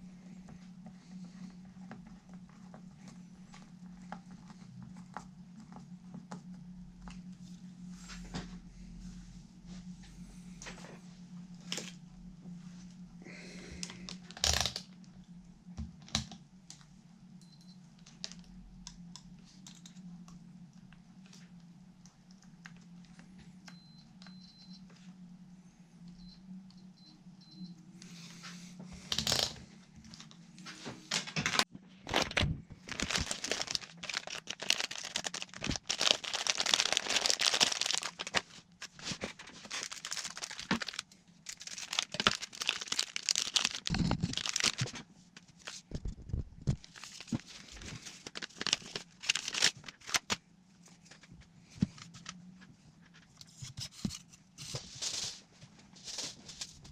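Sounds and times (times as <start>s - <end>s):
steady low hum: 0.0s - 56.9s
thin material crinkling and tearing: 31.5s - 50.4s.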